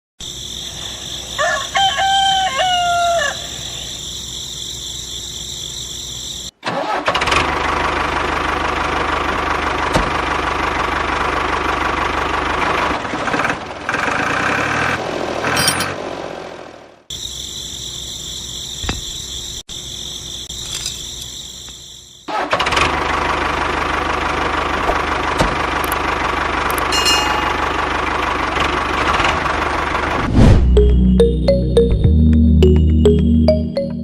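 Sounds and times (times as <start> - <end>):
rooster crowing: 1.3 - 3.7.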